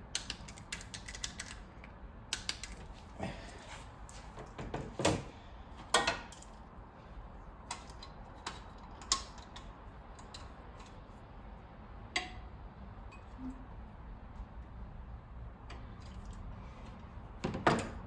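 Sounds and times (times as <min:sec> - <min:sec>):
hand tools clicking on metal: 0:00.1 - 0:01.6, 0:02.3 - 0:02.9, 0:07.7 - 0:11.0.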